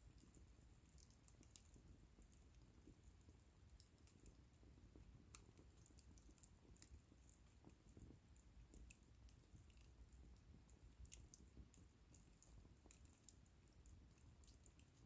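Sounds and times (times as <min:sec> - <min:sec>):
wood bonfire crackling: 0:00.0 - 0:15.0.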